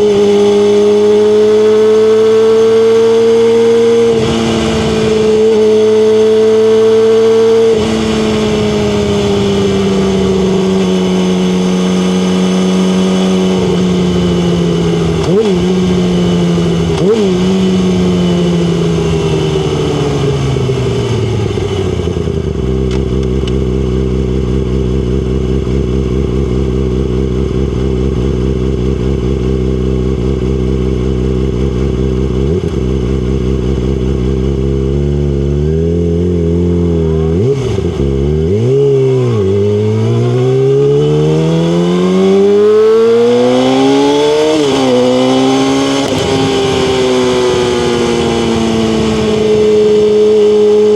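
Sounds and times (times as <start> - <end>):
motorcycle engine idling and revving: 0.0 - 50.9.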